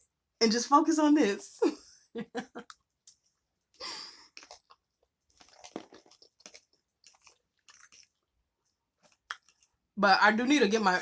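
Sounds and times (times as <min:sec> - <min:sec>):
person chewing food: 0:02.6 - 0:10.0.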